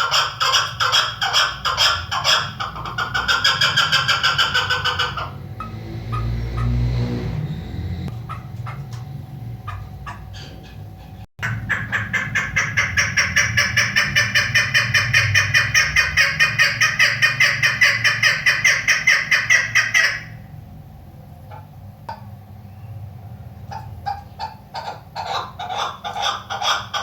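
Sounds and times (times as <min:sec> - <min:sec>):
partridge repeated calls: 0:00.0 - 0:06.9, 0:08.1 - 0:09.0, 0:09.6 - 0:10.8, 0:11.4 - 0:20.4, 0:23.6 - 0:27.0.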